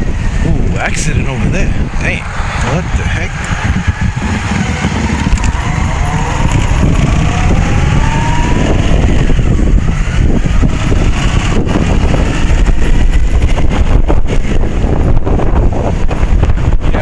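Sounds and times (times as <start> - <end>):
motorcycle engine accelerating: 0.0 - 17.0
wind rumble on microphone: 0.0 - 17.0.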